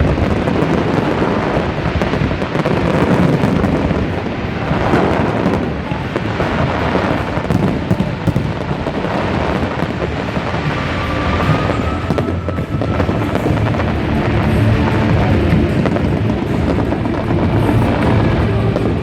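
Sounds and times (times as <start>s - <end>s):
fireworks bursting and crackling: 0.0s - 19.0s
faint rising whistle: 9.6s - 15.3s.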